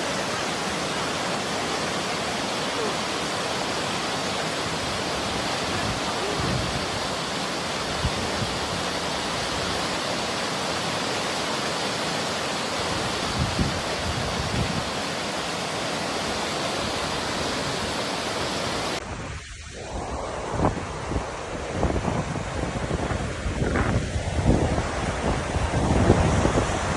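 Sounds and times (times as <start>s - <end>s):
waterfall roaring: 0.0s - 26.9s
wind buffeting the microphone: 4.6s - 9.9s, 12.9s - 14.9s, 19.0s - 26.9s.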